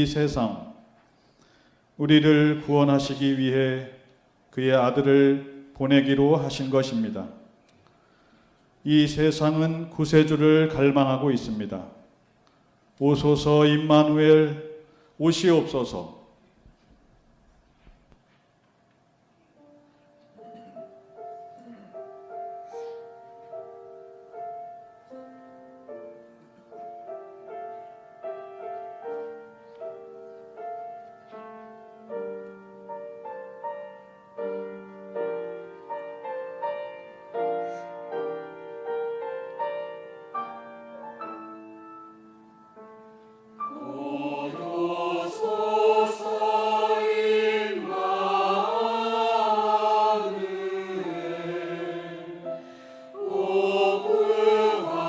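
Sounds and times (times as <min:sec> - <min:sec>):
piano chords: 0:19.6 - 0:55.0
choir singing: 0:43.6 - 0:55.0.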